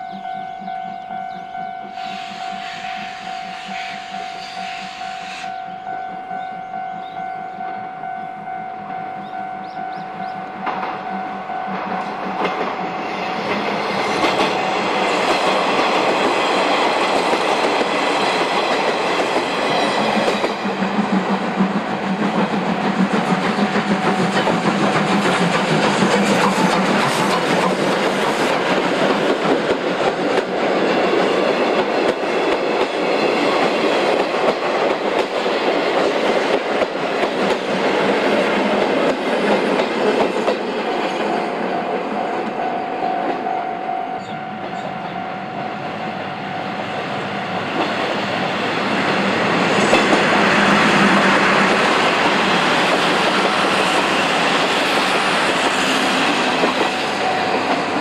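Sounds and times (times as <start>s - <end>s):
level crossing warning tone: 0.0s - 15.8s, 38.8s - 47.8s, 56.6s - 58.0s
electric train wheels clacking: 0.0s - 58.0s
train clattering over rail joints: 10.6s - 43.5s, 47.6s - 58.0s.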